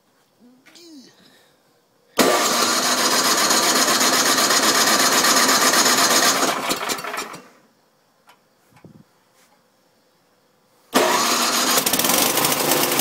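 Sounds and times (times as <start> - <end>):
snowblower engine sputtering: 2.2 - 7.6, 11.0 - 13.0.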